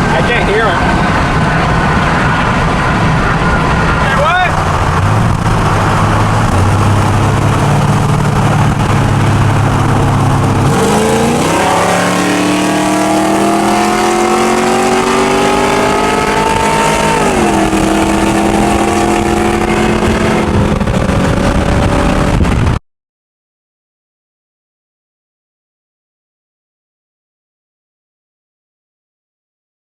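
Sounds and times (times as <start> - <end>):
truck engine accelerating: 0.0 - 22.8.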